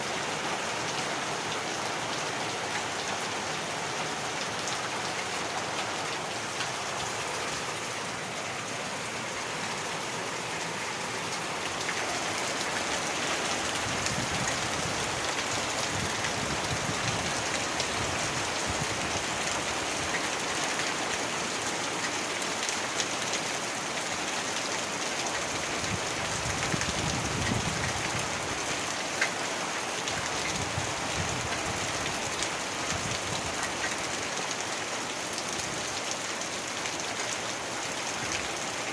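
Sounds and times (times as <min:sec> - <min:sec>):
heavy rain: 0:00.0 - 0:38.9
raindrops pattering on a surface: 0:10.3 - 0:38.9.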